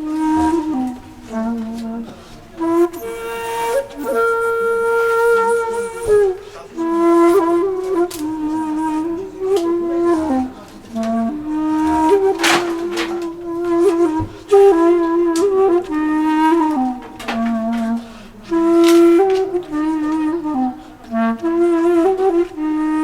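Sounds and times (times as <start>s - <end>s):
solo flute slow melody: 0.0s - 23.0s.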